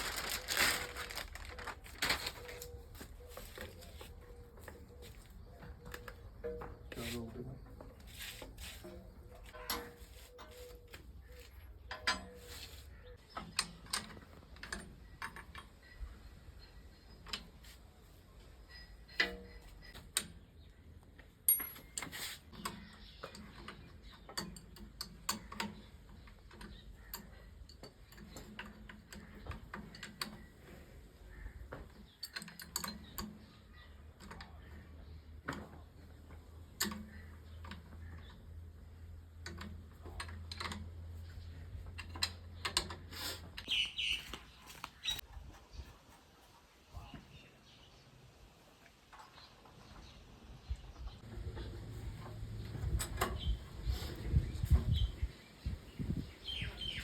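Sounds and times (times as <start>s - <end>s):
hand tools clicking and knocking: 31.7s - 38.5s.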